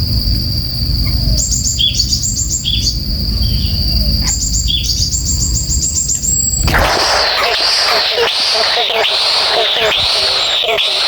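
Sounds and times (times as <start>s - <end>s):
steady high-pitched whine: 0.0s - 11.0s.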